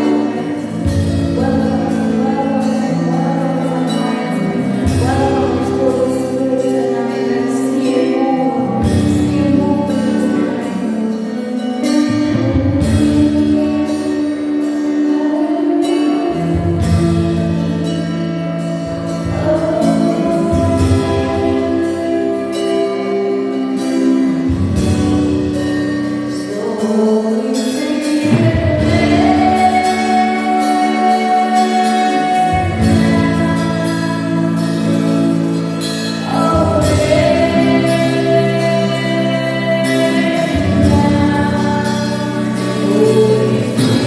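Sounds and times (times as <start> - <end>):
worship team singing: 27.1 - 44.0.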